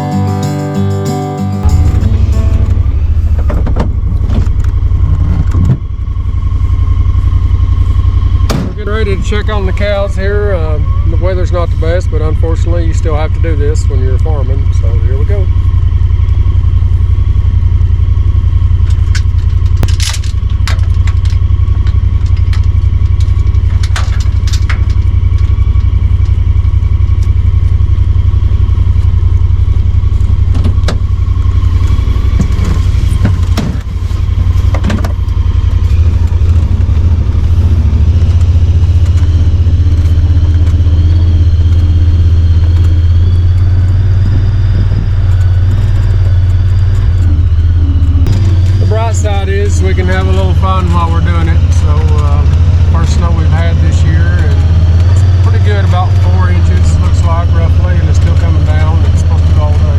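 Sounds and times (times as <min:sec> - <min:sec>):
vehicle engine running: 0:00.0 - 0:59.9
knocks and rattles: 0:01.6 - 0:05.9, 0:18.8 - 0:26.5, 0:31.9 - 0:43.1.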